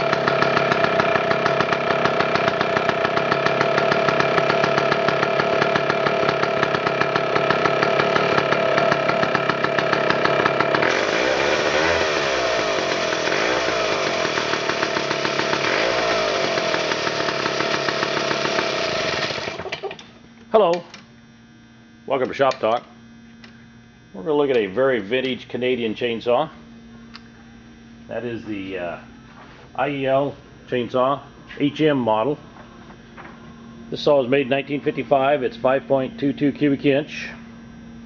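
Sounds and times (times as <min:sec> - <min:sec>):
chainsaw engine running: 0:00.0 - 0:19.9.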